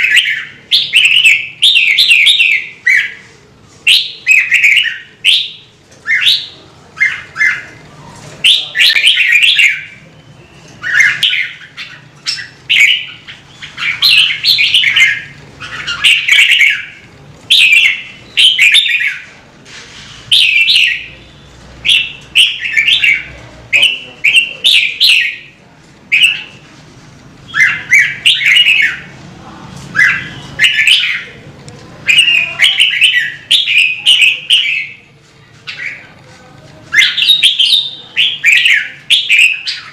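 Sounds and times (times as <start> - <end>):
bulbul singing: 0.0 - 3.3, 3.9 - 7.8, 8.4 - 19.4, 20.2 - 26.6, 27.4 - 29.2, 29.9 - 31.4, 32.0 - 36.2, 36.9 - 39.9.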